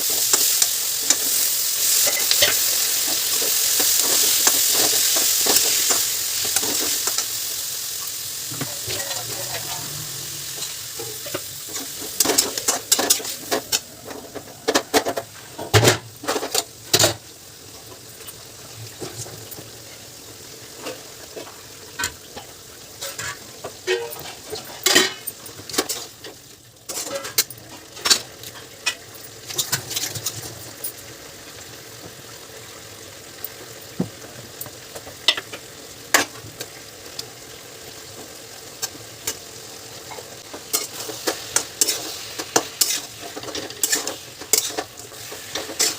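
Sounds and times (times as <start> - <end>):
food sizzling in a pan: 0.0 - 45.9
utensil scraping a pan: 8.5 - 15.7, 40.7 - 45.9.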